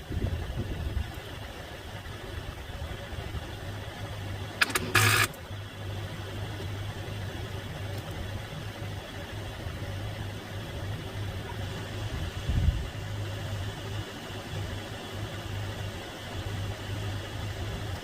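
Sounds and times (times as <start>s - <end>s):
engine failing to start: 4.6s - 5.4s
sharp clicks: 4.6s - 5.4s.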